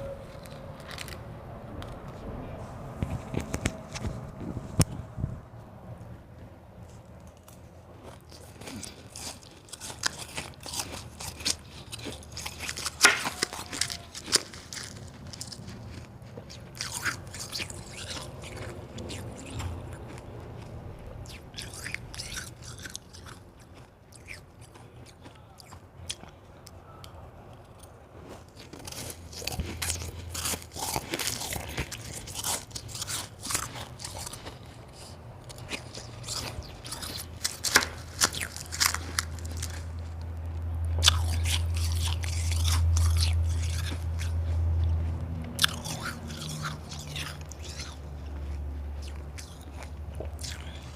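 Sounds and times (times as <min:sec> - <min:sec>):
chewing crunchy ice: 0:00.0 - 0:01.2, 0:06.7 - 0:50.9
low rumble: 0:00.0 - 0:06.8.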